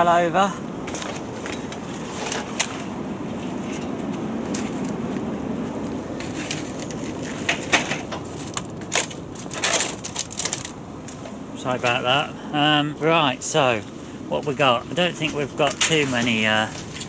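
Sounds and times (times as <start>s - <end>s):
rustling and clattering knocks: 6.2s - 11.4s.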